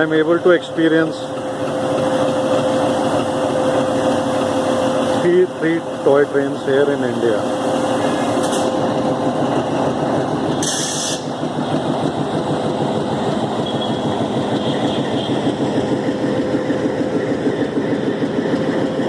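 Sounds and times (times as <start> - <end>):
train engine hum: 0.0 - 19.0
short hiss: 10.6 - 11.3.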